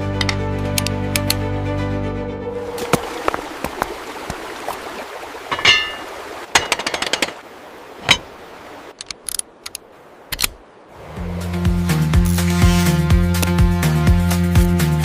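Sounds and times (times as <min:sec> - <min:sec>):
small tools tapping and clinking: 0:05.5 - 0:07.4.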